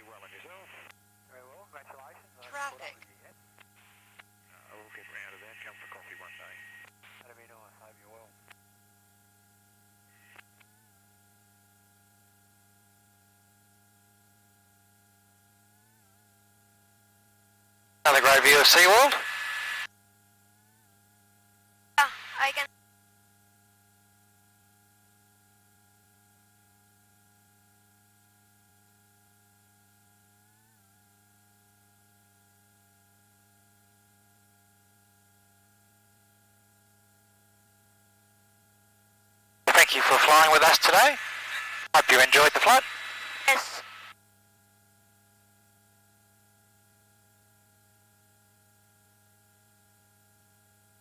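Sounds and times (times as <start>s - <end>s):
intercom line hiss: 0.0s - 0.9s, 4.6s - 7.3s, 18.1s - 19.9s, 22.0s - 22.7s, 39.7s - 44.1s
faint electrical hum and whine: 0.0s - 8.3s, 39.7s - 44.1s.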